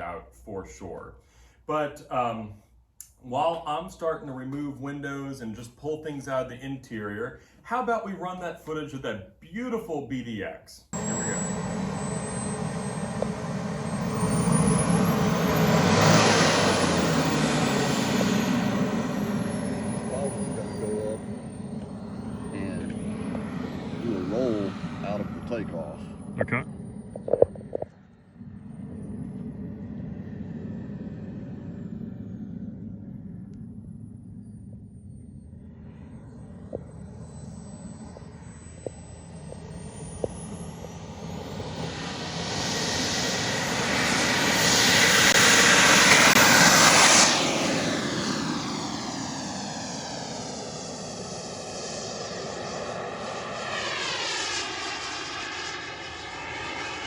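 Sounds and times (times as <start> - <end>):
high whine: 11.0 - 57.0
jet rushing noise: 11.0 - 57.0
low rumble: 11.0 - 57.0
model airplane engine: 11.0 - 57.0.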